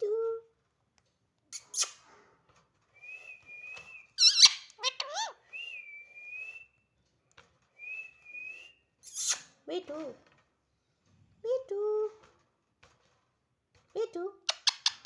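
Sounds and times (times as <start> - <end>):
parrot whistling: 3.1 - 6.7
parrot squawking: 4.2 - 5.4.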